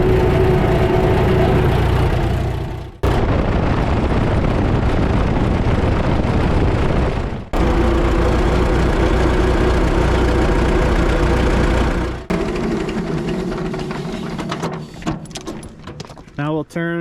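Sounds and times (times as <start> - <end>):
tractor engine idling: 0.0 - 3.6, 7.5 - 15.0.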